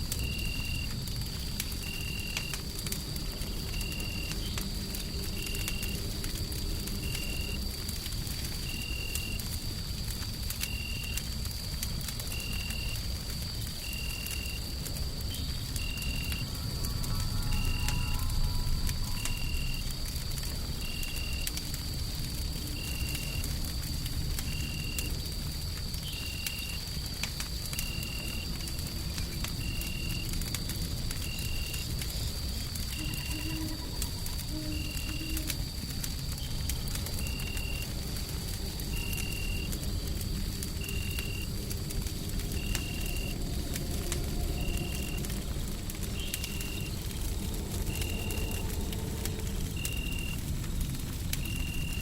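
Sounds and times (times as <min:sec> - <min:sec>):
wood fire crackling and popping: 0:00.0 - 0:52.0
low rumble of white noise: 0:34.4 - 0:52.0.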